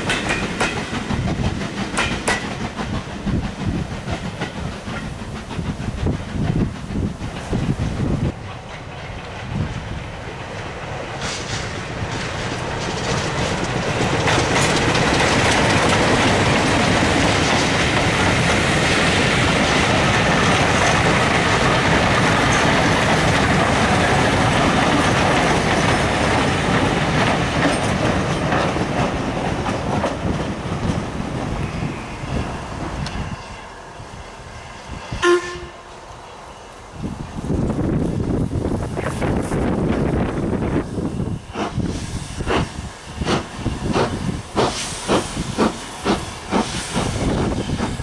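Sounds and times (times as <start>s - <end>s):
wheels over rail joints: 0.0s - 31.8s
train coaches rolling past: 0.0s - 48.0s.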